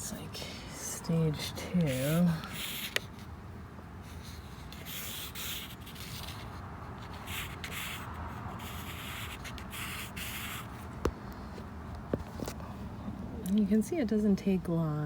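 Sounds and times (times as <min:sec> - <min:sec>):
pen scratching on paper: 0:01.4 - 0:03.3, 0:04.0 - 0:10.8.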